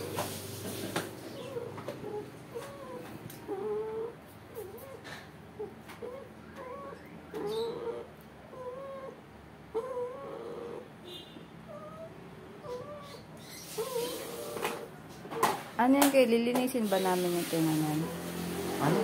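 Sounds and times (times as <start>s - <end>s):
puppy whimpering and whining: 1.3s - 10.9s, 11.7s - 15.6s.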